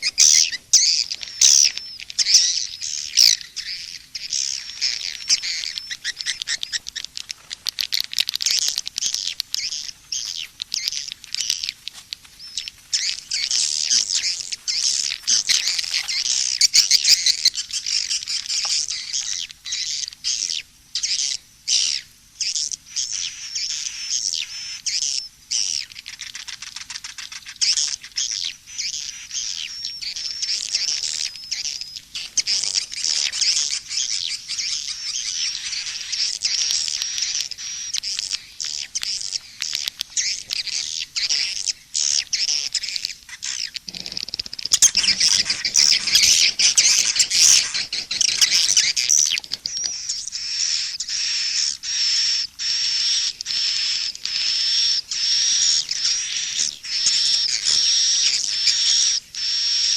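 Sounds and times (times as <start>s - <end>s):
swiftlets twittering in rapid trills: 27.1s - 59.9s.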